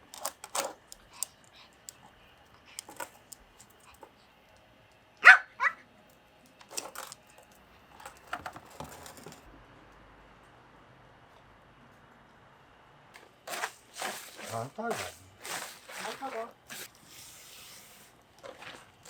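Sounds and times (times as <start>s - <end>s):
dog barking: 5.2s - 5.9s.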